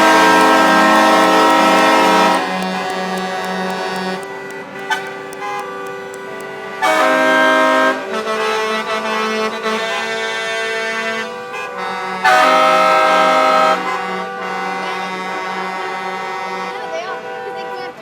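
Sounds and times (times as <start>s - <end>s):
truck air horn blasts: 0.0s - 5.8s, 6.8s - 17.9s
music with sustained notes: 0.0s - 6.2s.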